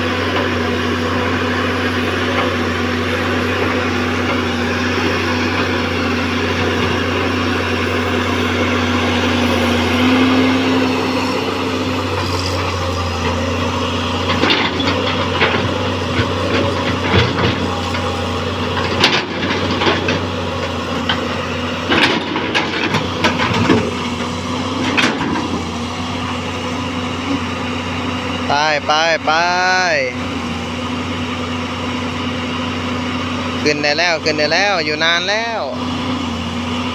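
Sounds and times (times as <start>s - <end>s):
diesel engine under load: 0.0s - 36.9s
metal clanks and knocks: 14.2s - 25.6s.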